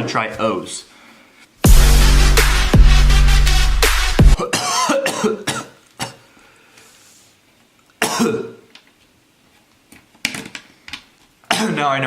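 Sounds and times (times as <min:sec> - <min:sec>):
person coughing: 0:04.4 - 0:06.3, 0:08.0 - 0:08.6, 0:11.5 - 0:11.9.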